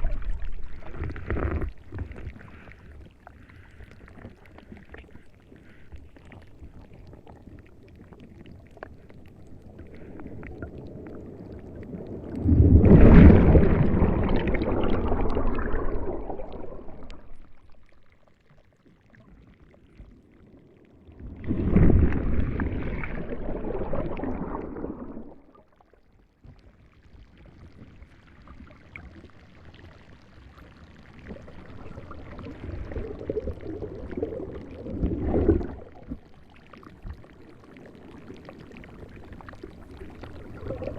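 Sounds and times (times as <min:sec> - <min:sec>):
rushing water in surges: 0:10.0 - 0:17.4.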